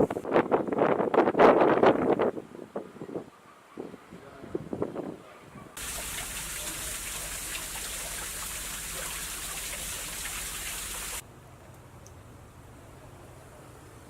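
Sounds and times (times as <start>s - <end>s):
falling water splashing: 5.8s - 11.2s.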